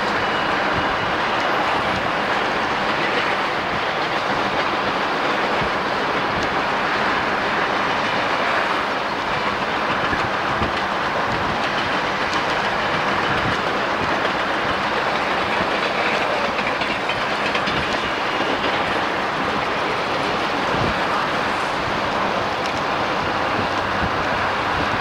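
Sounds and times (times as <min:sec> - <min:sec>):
steel wheels rumbling on rail: 0:00.0 - 0:25.0
wheels clacking over rail joints: 0:00.0 - 0:25.0.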